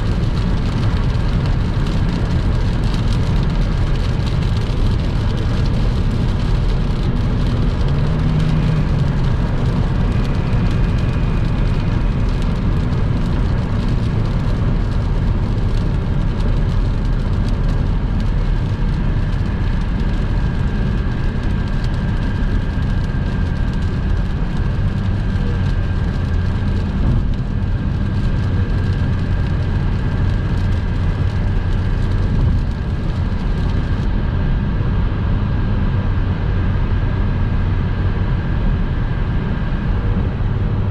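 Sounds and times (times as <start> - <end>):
rain hissing: 0.0 - 34.0
low engine drone: 0.0 - 40.9
tyre and road noise: 0.0 - 40.9.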